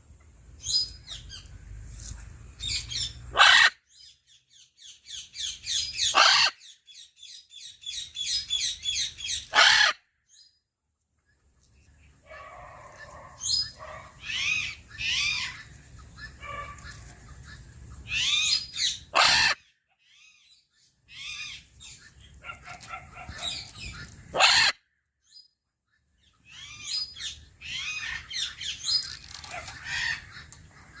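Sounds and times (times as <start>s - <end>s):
macaw squawking: 2.6s - 3.8s, 5.7s - 6.8s, 8.3s - 10.0s, 13.0s - 20.4s, 21.1s - 24.8s.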